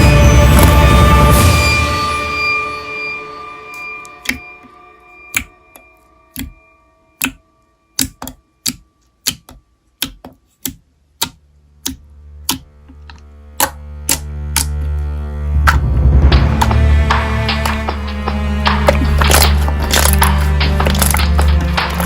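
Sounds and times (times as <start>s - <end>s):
low music: 0.0s - 10.2s, 11.1s - 22.0s
held music tones: 0.0s - 22.0s
sharp ticking clicks: 5.3s - 6.6s, 7.2s - 7.4s, 8.0s - 14.8s.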